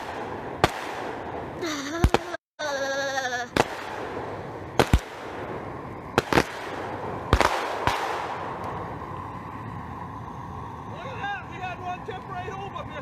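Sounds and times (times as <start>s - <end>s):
fireworks bangs: 0.0s - 2.4s, 3.5s - 13.0s.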